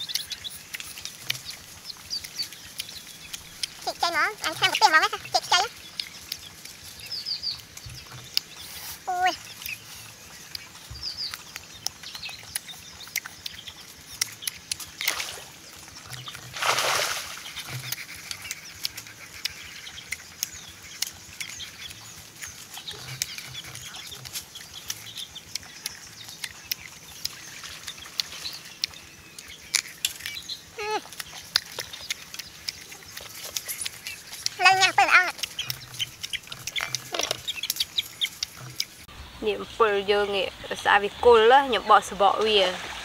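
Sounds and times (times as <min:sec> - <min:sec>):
crunching and chewing mango: 0:00.0 - 0:39.1.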